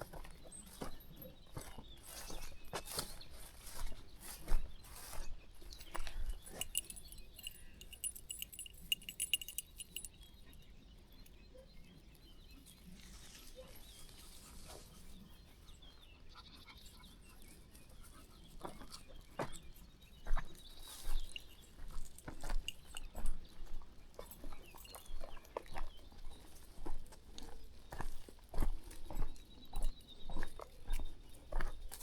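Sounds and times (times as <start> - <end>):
footsteps crunching on path: 0.0 - 10.1.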